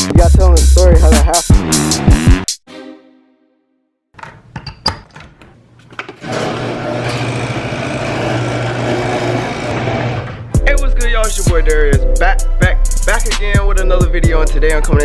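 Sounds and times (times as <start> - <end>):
small engine running: 6.2 - 10.4.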